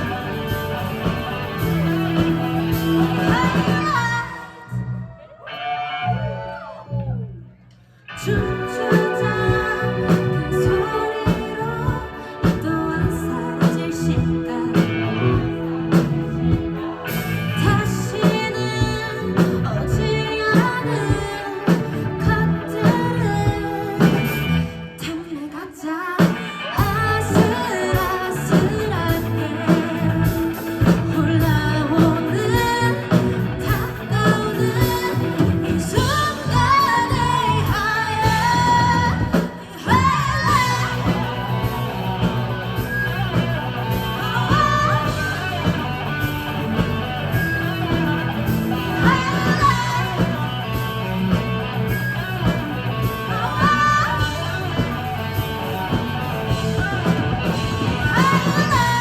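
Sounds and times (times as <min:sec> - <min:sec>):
person singing: 0:00.0 - 0:06.7, 0:08.1 - 0:59.0
live rock band: 0:00.0 - 0:59.0.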